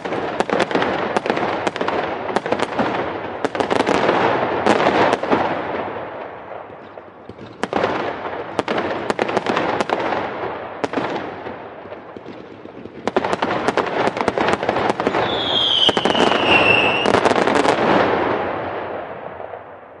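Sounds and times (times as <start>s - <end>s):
fireworks crackling: 0.0s - 20.0s
whistling firework: 12.1s - 20.0s.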